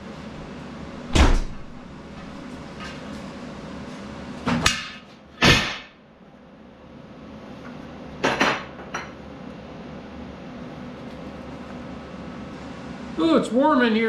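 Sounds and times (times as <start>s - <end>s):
steady background hum: 0.0s - 14.0s
loud knocks and bangs: 1.1s - 1.8s, 5.4s - 6.0s.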